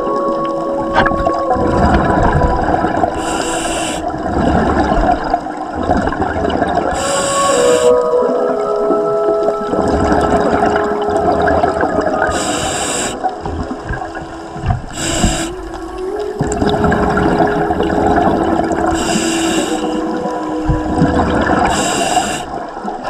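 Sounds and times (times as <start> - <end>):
hissing bubble bursts: 0.9 - 8.2, 10.5 - 13.5, 14.9 - 15.7, 16.4 - 23.0
diver breathing through regulator: 3.1 - 4.3, 6.9 - 8.0, 12.3 - 13.4, 14.8 - 15.6, 18.8 - 20.2, 21.5 - 22.7.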